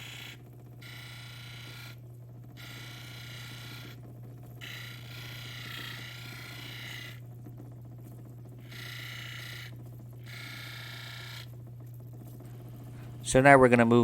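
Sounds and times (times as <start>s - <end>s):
machine motor hum: 0.0s - 14.0s
stone grinding on wheel: 2.6s - 4.0s, 4.6s - 7.2s.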